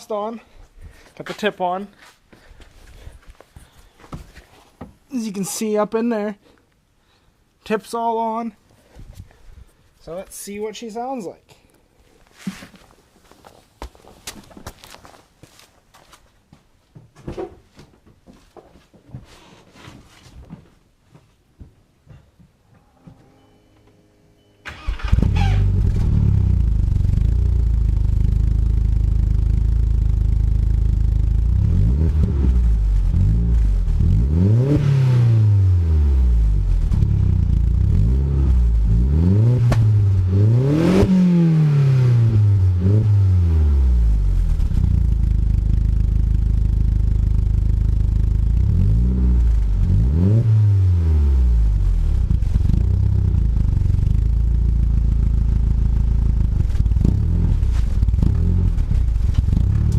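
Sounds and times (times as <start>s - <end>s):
car engine starting: 24.0s - 59.9s
car engine idling: 24.7s - 31.8s, 44.0s - 49.9s, 51.6s - 59.9s
car engine revving: 24.7s - 45.8s, 47.3s - 59.9s.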